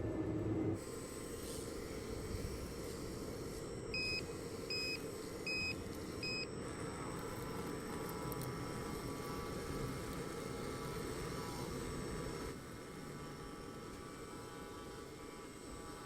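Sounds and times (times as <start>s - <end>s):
reversing warning beeps: 3.8s - 6.6s.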